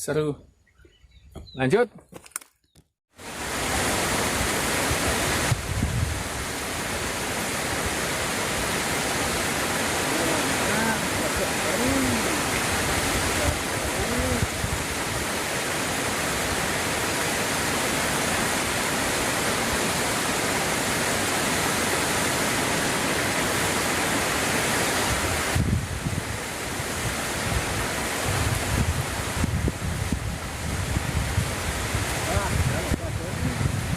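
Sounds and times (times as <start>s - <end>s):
flowing water rushing: 3.2s - 33.9s
wind gusts on microphone: 3.3s - 8.0s, 9.2s - 15.6s, 24.6s - 33.9s.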